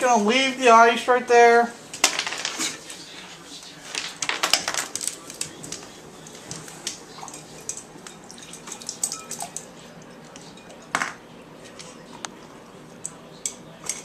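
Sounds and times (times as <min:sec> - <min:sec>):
water dripping: 0:06.2 - 0:10.9
water splashing in bowl: 0:06.9 - 0:10.9.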